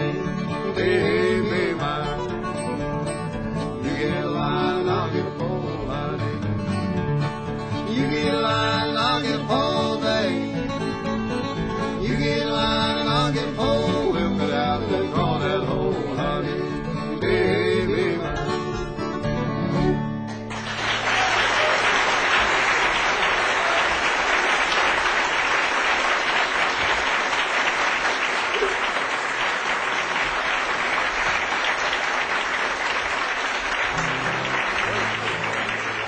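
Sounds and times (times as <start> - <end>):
acoustic guitar music: 0.0 - 20.7, 33.8 - 36.0
audience applauding: 20.3 - 36.0.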